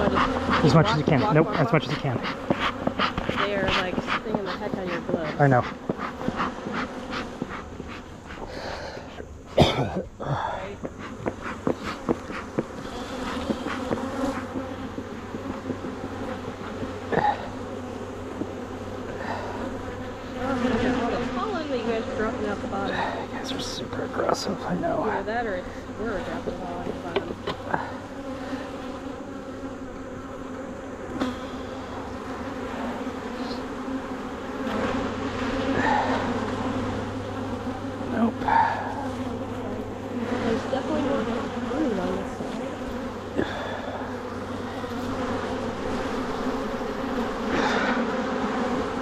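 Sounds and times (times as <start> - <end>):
honeybees buzzing: 0.0 - 49.0.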